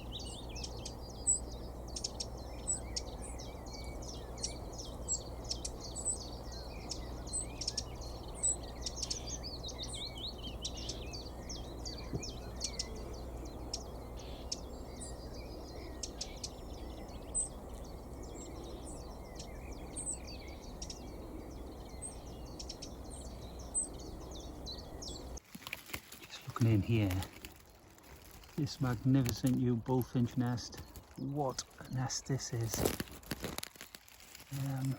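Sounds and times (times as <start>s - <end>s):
low background rumble: 0.0s - 25.4s
small birds chirping: 0.0s - 34.9s.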